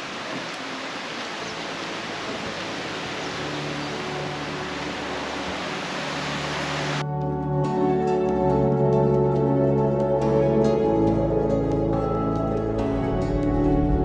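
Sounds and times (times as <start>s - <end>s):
steady rushing noise: 0.0s - 7.0s
background music: 1.5s - 14.0s.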